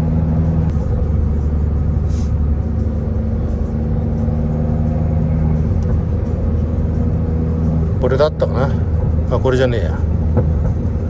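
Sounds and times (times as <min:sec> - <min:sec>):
car engine low drone: 0:00.0 - 0:11.0
road noise: 0:00.0 - 0:11.0.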